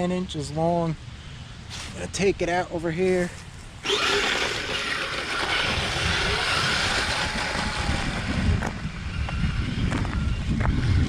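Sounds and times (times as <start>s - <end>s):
rc tracked vehicle driving on grass: 3.2s - 11.0s
motor whine: 3.8s - 11.0s.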